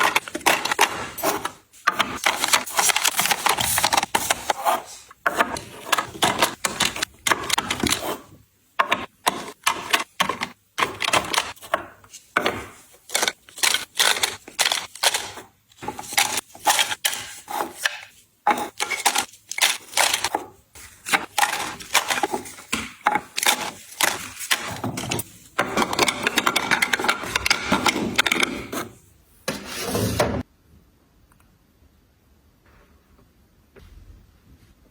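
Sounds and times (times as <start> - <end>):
packaging rustling: 0.0 - 5.0, 11.0 - 28.5
items clicking and knocking: 0.0 - 30.4.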